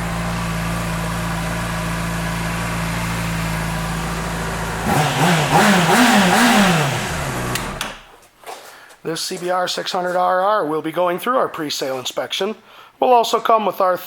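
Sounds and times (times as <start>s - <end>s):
motorcycle engine idling and revving: 0.0s - 8.1s.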